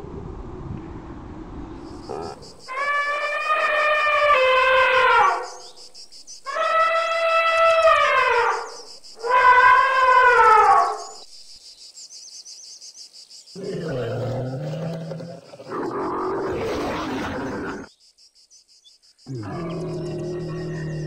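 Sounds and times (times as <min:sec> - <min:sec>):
elephant trumpeting: 0:02.1 - 0:05.5.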